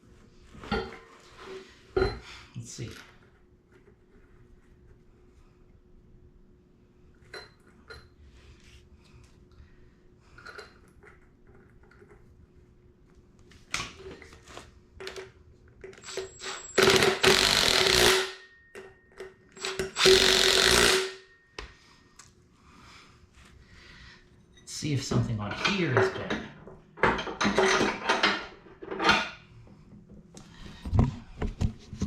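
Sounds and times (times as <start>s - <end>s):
tools clanking on metal: 0.6s - 1.1s, 25.5s - 29.4s
handheld power tool running: 16.0s - 18.4s, 19.6s - 21.2s.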